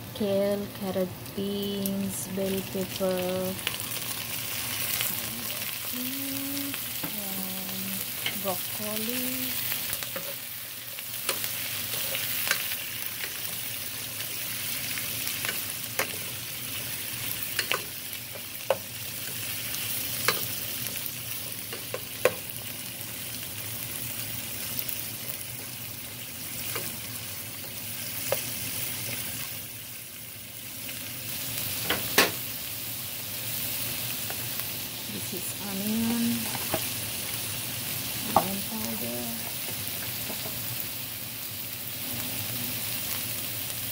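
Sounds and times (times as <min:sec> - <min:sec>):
food sizzling in frying pan: 0:00.0 - 0:43.9.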